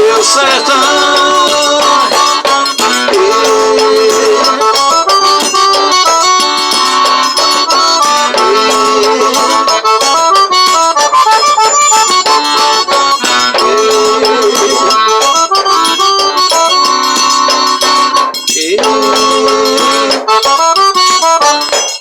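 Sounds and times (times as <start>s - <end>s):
button accordion melody: 0.0s - 22.0s
quick percussion rhythm: 0.0s - 22.0s.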